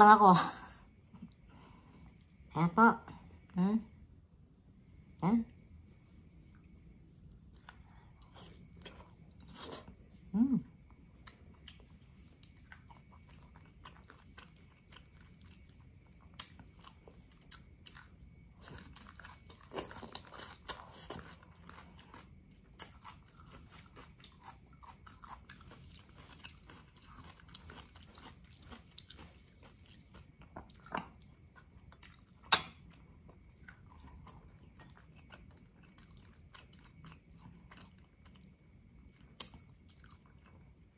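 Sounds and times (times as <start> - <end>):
wet chewing and lip smacks: 11.1 - 40.7.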